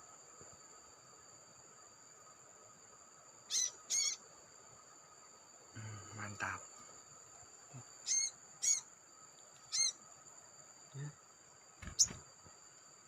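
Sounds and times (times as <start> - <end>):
high-pitched insect drone: 0.0 - 13.0
small bird call notes: 3.5 - 4.2, 8.0 - 8.9, 9.6 - 10.0.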